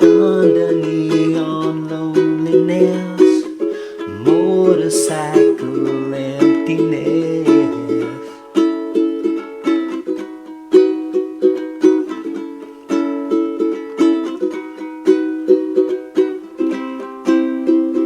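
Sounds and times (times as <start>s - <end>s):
ukulele strumming: 0.0s - 18.0s.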